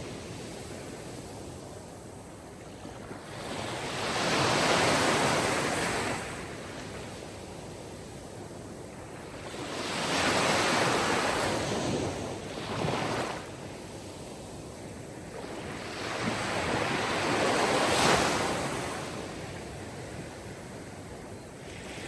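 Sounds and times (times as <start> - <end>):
sea surf washing on shore: 3.1 - 22.0.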